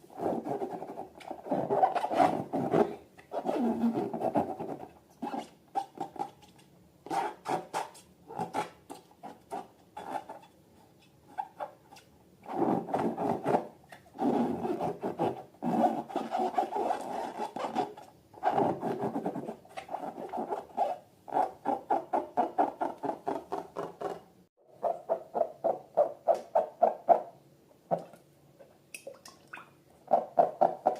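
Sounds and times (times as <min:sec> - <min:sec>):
balloons rubbed and squeezed: 0:00.1 - 0:06.5, 0:12.4 - 0:23.9.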